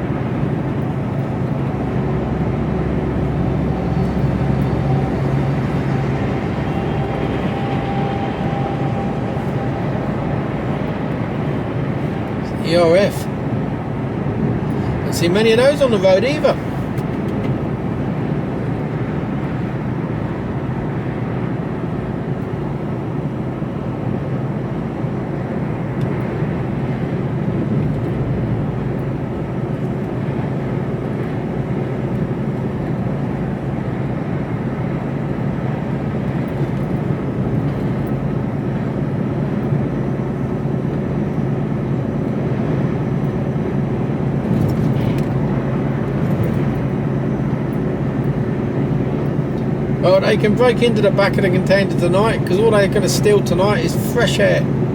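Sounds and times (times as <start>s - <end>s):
diesel truck engine drone: 0.0s - 54.9s
road and tyre noise: 0.0s - 54.9s.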